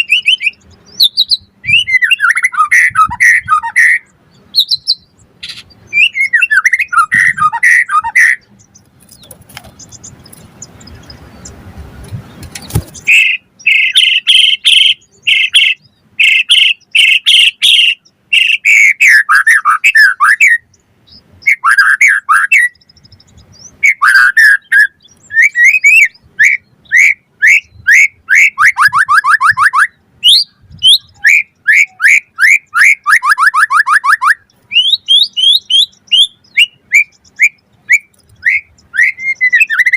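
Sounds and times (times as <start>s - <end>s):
bird singing whistles and chirps: 0.0s - 11.6s, 12.3s - 39.9s
bird rattling trills: 4.8s - 18.8s.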